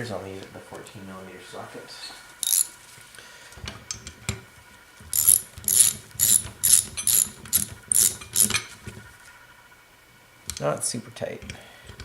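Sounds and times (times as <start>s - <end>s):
socket ratchet wrench clicking: 2.4s - 2.7s, 5.2s - 8.6s.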